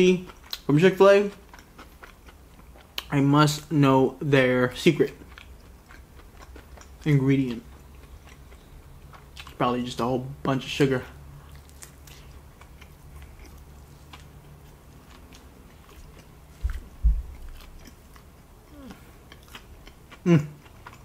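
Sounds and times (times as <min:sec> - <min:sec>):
biting and chewing chicken: 0:05.0 - 0:09.7, 0:11.4 - 0:21.0
low thumps: 0:16.6 - 0:17.7
person humming: 0:18.7 - 0:19.1.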